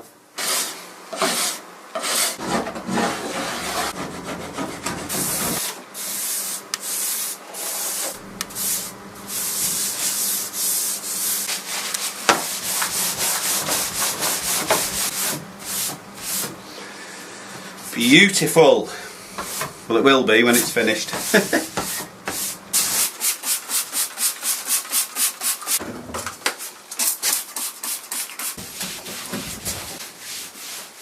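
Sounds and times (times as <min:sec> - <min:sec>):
scraper dragging over wood: 0:00.4 - 0:16.6.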